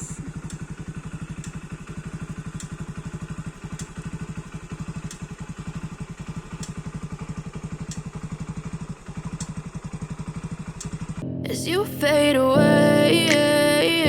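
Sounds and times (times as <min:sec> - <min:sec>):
vehicle engine running steadily: 0:00.0 - 0:11.2
faint ticks: 0:00.1 - 0:01.8, 0:02.5 - 0:03.1, 0:05.0 - 0:05.7, 0:06.5 - 0:07.0, 0:07.8 - 0:08.2, 0:09.3 - 0:09.9, 0:10.6 - 0:11.2.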